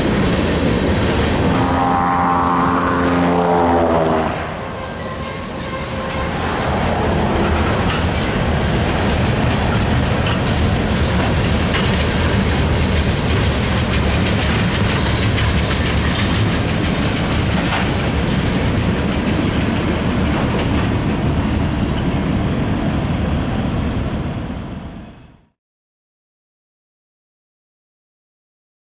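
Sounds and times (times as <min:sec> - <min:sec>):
train wheels rumbling on rail: 0:00.0 - 0:25.5.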